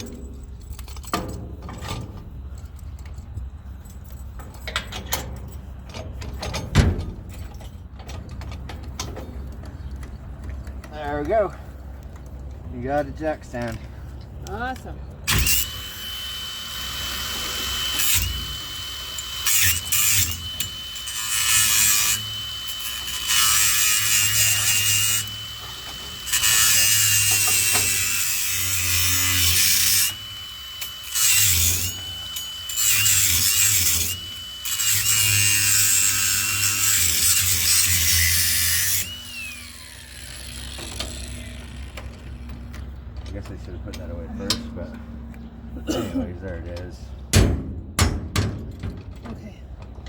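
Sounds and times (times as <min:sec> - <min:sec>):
angle grinder motor whine: 0:15.3 - 0:42.4.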